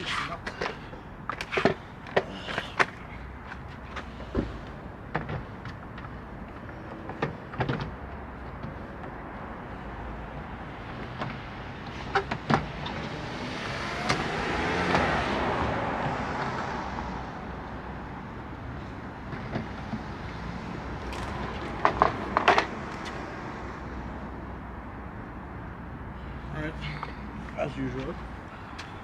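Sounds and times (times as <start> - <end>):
car passing by: 12.6 - 17.9.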